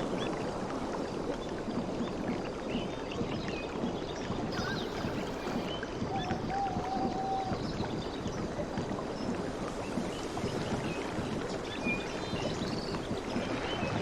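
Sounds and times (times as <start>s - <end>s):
sea water lapping: 4.3s - 14.0s.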